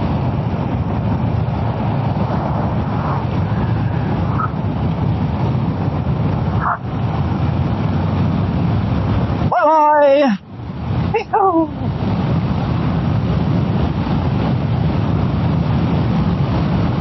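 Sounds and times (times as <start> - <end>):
wind and road noise: 0.0 - 17.0.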